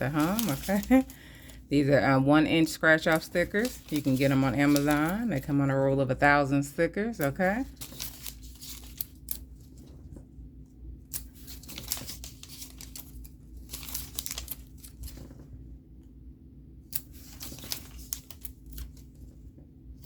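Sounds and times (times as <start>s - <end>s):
stickers peeling and crinkling: 0.0s - 1.5s, 2.4s - 5.6s, 7.1s - 9.9s, 11.1s - 15.4s, 16.9s - 19.2s.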